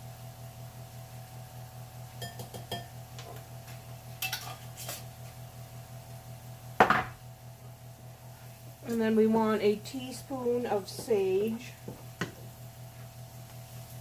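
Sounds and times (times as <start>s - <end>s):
steady low hum: 0.0s - 14.0s
spoon and dishes clinking: 2.2s - 2.9s, 4.2s - 5.0s.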